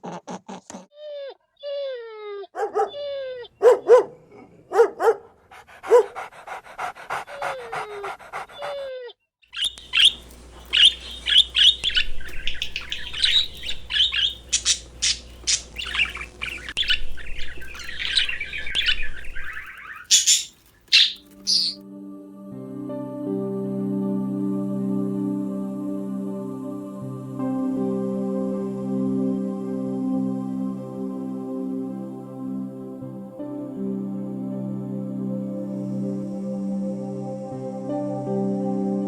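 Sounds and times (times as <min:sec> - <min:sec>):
high bird chirps: 0:09.5 - 0:21.8.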